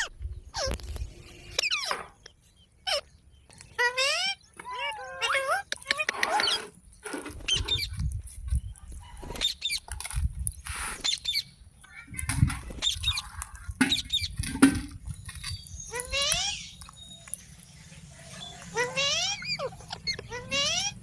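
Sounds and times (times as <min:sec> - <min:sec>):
parrot squawking: 0:03.8 - 0:06.7, 0:15.9 - 0:16.7, 0:18.7 - 0:21.0.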